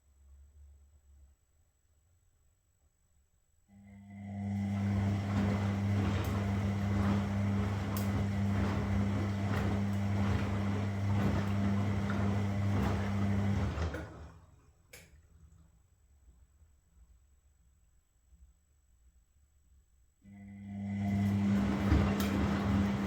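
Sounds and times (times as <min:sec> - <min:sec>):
washing machine running: 0:03.8 - 0:14.7, 0:20.3 - 0:23.0.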